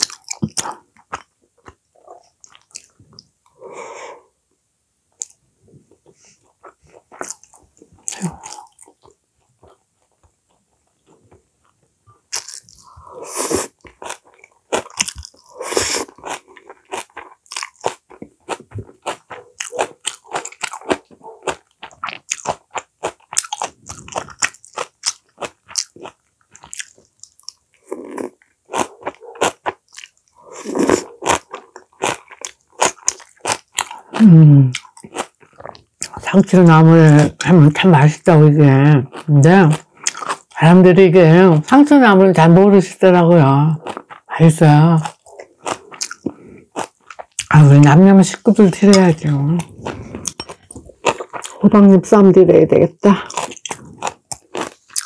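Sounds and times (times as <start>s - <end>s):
wet chewing and crunchy clicks: 0.0s - 3.3s, 5.1s - 13.0s, 13.7s - 37.9s, 39.0s - 40.7s, 43.8s - 51.9s, 53.2s - 55.0s
person humming: 34.2s - 34.7s.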